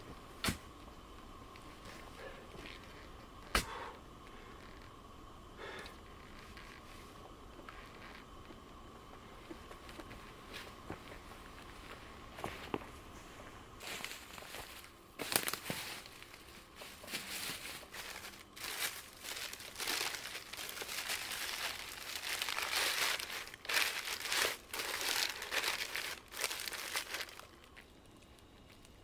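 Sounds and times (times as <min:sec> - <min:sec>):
rustling and crunching of dry leaves: 0:13.8 - 0:29.0.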